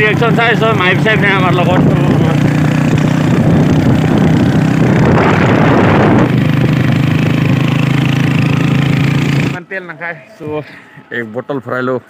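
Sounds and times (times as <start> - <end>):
loud rushing noise: 1.7 - 9.6.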